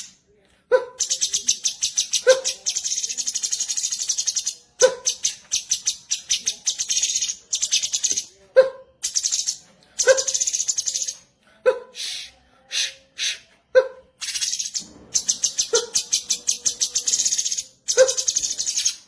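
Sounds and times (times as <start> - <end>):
bird song with buzzy trills: 14.2 - 19.0.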